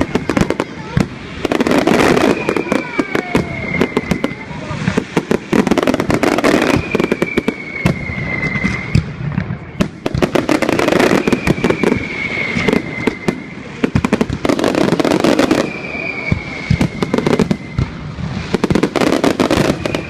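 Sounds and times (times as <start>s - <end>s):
fireworks crackling and banging: 0.0s - 20.0s
thin high whistle: 1.5s - 18.1s, 18.9s - 20.0s.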